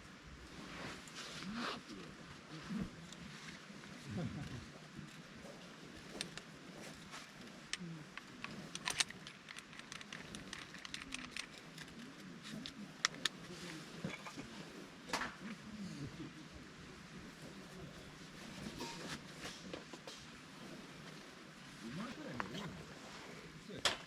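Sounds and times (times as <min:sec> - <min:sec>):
objects clicking and clinking: 0:06.0 - 0:13.4.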